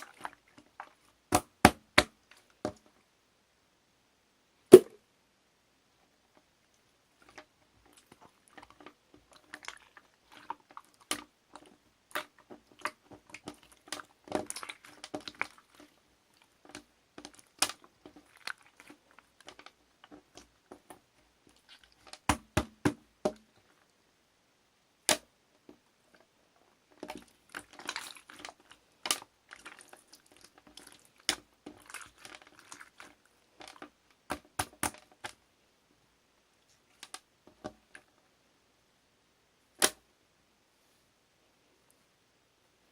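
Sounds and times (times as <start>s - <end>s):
slime squishing with wet pops: 0.0s - 3.0s, 7.2s - 23.9s, 25.0s - 26.2s, 26.8s - 35.4s.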